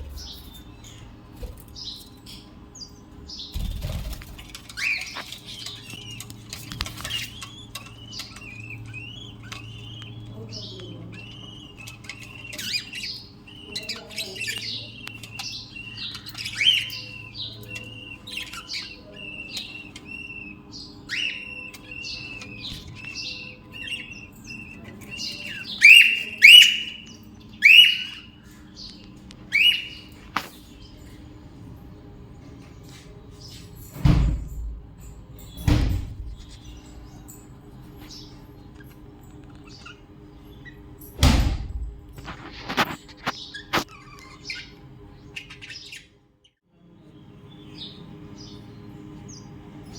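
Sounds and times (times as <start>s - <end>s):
loud sharp bird calls: 0.0s - 31.0s
budgerigars chattering: 0.0s - 31.1s, 42.2s - 46.1s.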